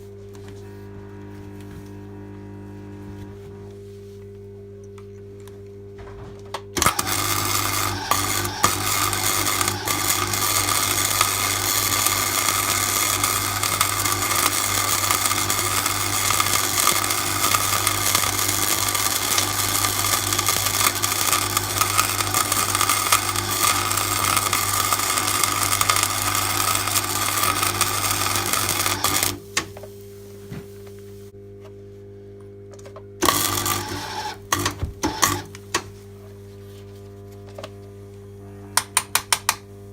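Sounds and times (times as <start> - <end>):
low hum: 0.6 - 3.8
welding arc crackling: 6.8 - 29.8, 33.2 - 35.6.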